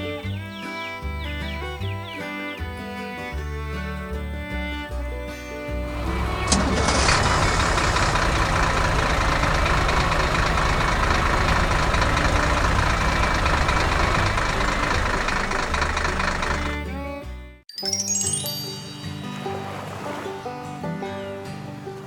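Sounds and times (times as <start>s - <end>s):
heavy machine engine running: 5.9s - 16.9s.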